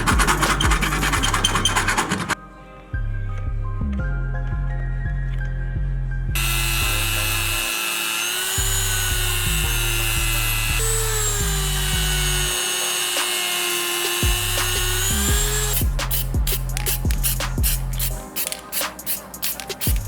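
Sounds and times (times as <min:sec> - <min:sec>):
rotary tool whining: 0:00.0 - 0:02.4, 0:06.4 - 0:17.0
background music with beat: 0:00.0 - 0:06.6, 0:14.1 - 0:20.0.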